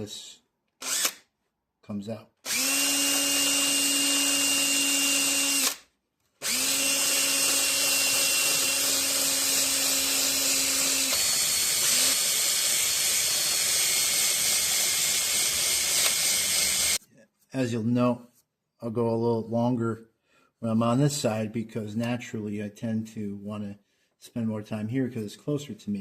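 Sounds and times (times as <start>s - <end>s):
electric drill motor whine: 0.8s - 1.2s, 2.4s - 5.8s, 6.4s - 17.0s.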